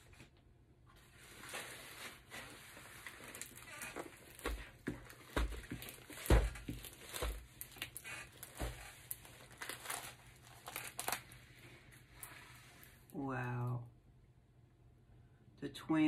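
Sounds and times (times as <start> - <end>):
plastic film and paper crinkling: 1.0 - 13.2.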